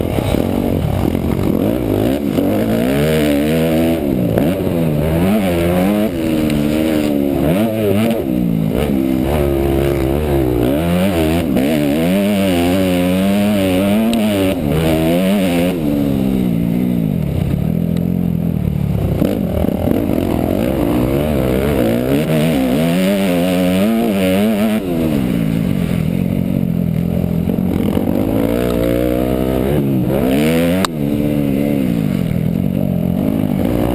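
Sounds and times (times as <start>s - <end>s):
motocross bike engine revving: 0.0s - 33.9s.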